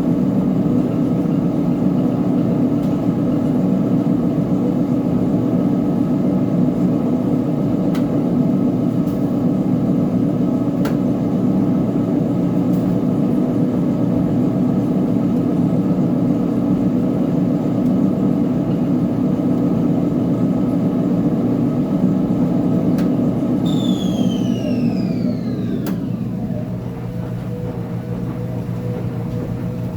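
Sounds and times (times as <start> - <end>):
washing machine hum: 0.0 - 29.9
motor whine falling in pitch: 23.6 - 28.1.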